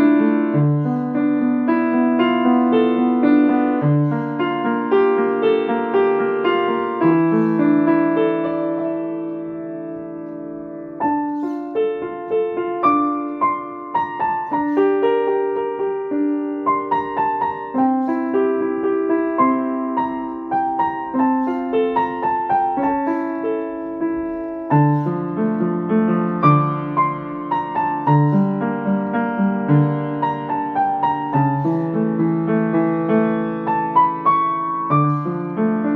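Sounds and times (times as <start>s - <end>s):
slow gentle piano piece: 0.0s - 35.9s.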